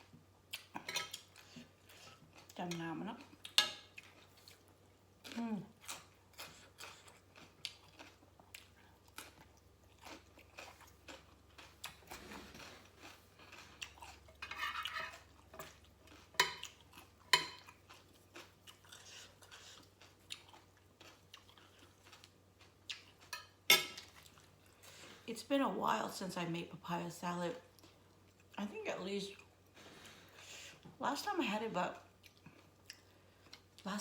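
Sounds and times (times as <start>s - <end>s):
chewing crunchy food: 0.4s - 25.0s, 32.0s - 33.8s.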